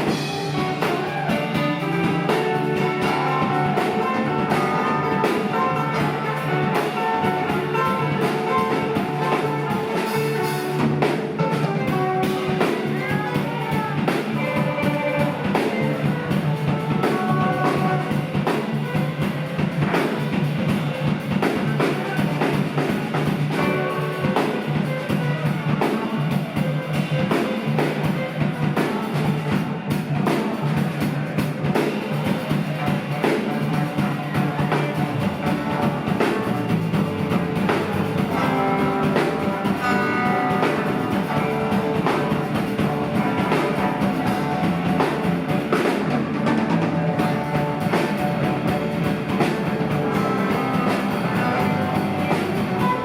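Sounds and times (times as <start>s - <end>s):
electric guitar sliding in pitch: 0.0s - 20.3s, 34.0s - 53.0s
live rock band playing: 0.0s - 53.0s.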